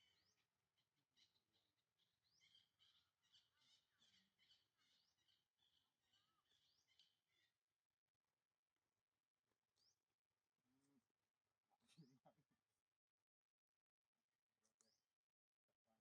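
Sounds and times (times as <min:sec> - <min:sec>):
small birds chirping: 0:00.0 - 0:07.6, 0:09.7 - 0:10.1, 0:14.6 - 0:15.2.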